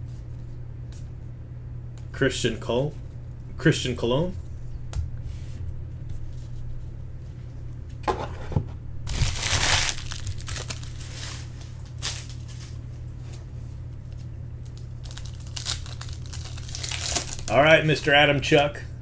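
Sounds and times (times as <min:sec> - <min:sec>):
low hum: 0:00.0 - 0:19.0
wrapper crinkling and tearing: 0:09.1 - 0:12.8, 0:14.6 - 0:17.6.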